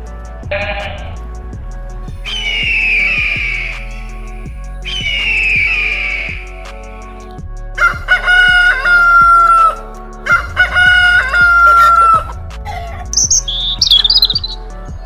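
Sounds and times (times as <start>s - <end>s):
rooster crowing: 7.8s - 12.3s
high chirping: 13.1s - 14.6s.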